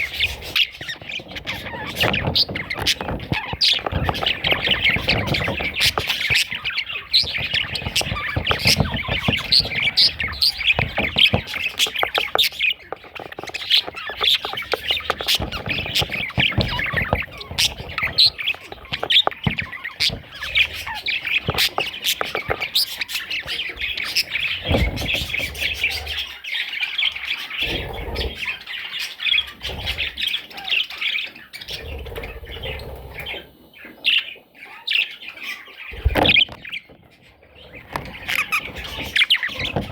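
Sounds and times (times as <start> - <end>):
budgerigar chattering and warbling: 0.0 - 33.4, 37.6 - 39.9
dull thumps: 0.1 - 25.9, 36.0 - 39.9.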